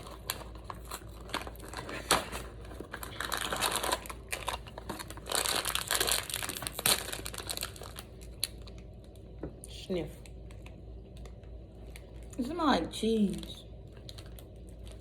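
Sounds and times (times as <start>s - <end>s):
wrapper crinkling and crackling: 0.0s - 9.2s, 10.2s - 15.0s.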